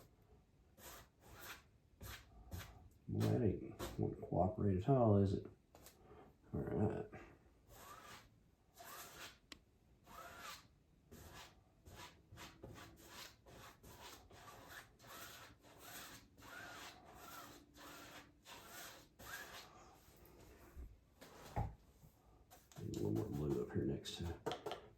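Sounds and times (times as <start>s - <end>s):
paintbrush scratching on canvas: 0.8s - 4.1s, 7.7s - 9.4s, 10.0s - 21.6s, 22.5s - 24.4s.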